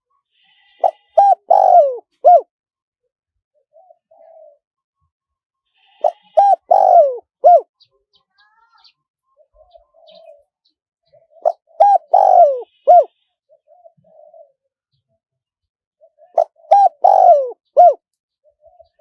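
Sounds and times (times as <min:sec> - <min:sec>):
dove cooing: 0:00.8 - 0:02.5, 0:03.7 - 0:04.6, 0:05.9 - 0:07.7, 0:09.4 - 0:10.4, 0:11.1 - 0:14.7, 0:16.0 - 0:19.0.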